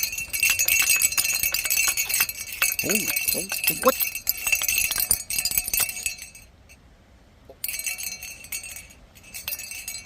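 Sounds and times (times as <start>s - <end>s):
dog collar tags jingling: 0.0s - 6.4s.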